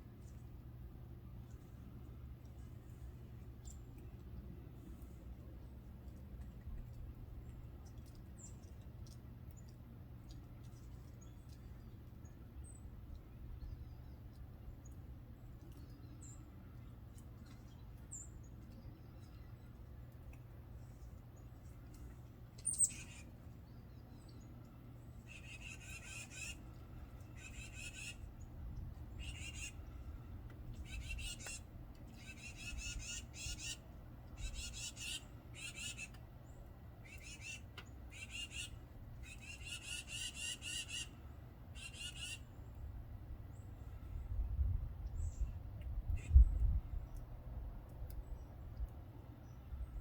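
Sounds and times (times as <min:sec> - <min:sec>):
rapid high squawky bird calls: 0:22.7 - 0:23.3, 0:25.2 - 0:26.6, 0:27.4 - 0:28.2, 0:29.2 - 0:29.8, 0:32.2 - 0:33.8, 0:34.4 - 0:36.1, 0:37.0 - 0:41.2, 0:41.8 - 0:42.4.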